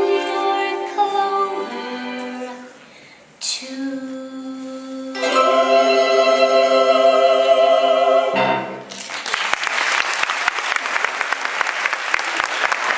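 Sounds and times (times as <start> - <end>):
audience applause: 8.9 - 12.9.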